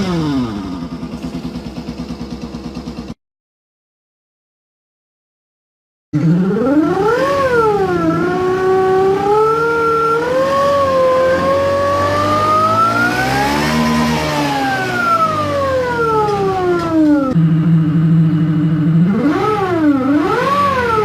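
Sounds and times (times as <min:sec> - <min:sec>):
simulated engine idle note: 0:00.0 - 0:03.2, 0:15.2 - 0:20.1
simulated motorcycle engine revving: 0:00.0 - 0:03.2, 0:06.2 - 0:21.0.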